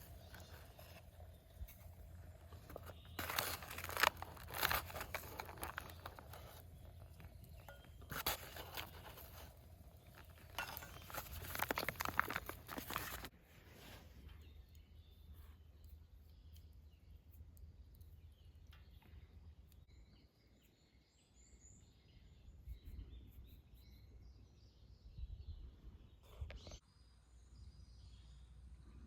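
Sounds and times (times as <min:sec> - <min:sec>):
rustling and crunching handling: 0:00.0 - 0:16.2.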